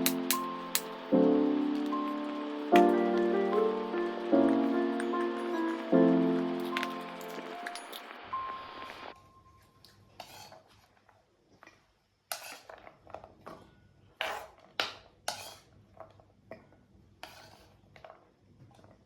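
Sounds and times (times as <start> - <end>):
dishes and utensils clinking: 0.0 - 0.9, 4.4 - 8.1.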